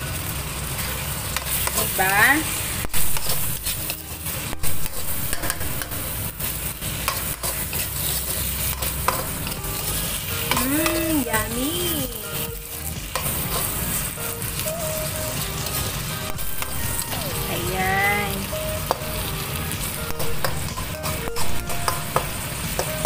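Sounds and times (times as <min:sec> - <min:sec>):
prawns sizzling in a pan: 0:00.0 - 0:23.0
utensil scraping a pan: 0:06.9 - 0:11.0.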